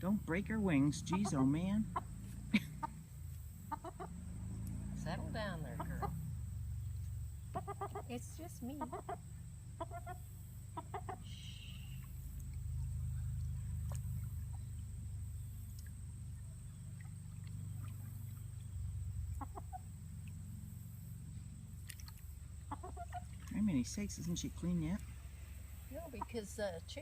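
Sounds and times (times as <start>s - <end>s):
steady low rumble: 0.0s - 27.0s
hen clucking: 0.6s - 4.2s, 5.3s - 6.2s, 7.4s - 9.2s, 9.8s - 12.1s, 19.3s - 19.9s, 22.6s - 25.0s, 25.9s - 26.7s.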